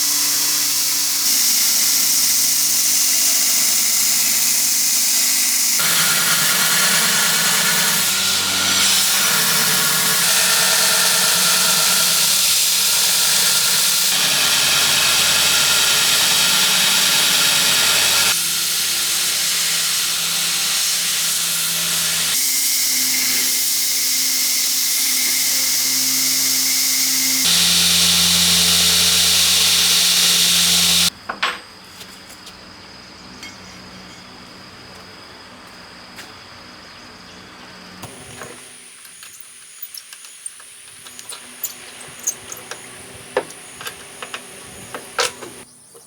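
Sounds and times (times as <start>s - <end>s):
power tool running: 0.0s - 31.1s, 38.0s - 45.7s
high insect chirping: 38.8s - 44.2s.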